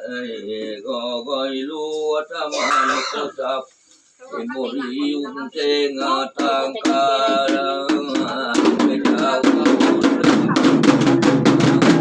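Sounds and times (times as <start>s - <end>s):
person chanting: 0.0s - 12.0s
fast drum beats: 5.9s - 12.0s.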